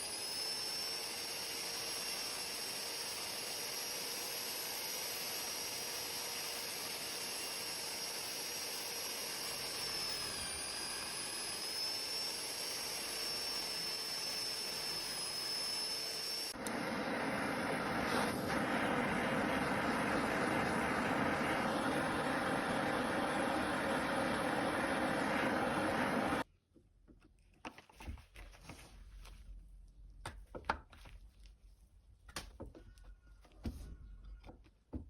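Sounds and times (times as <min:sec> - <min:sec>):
power tool whining on metal: 0:00.0 - 0:26.5.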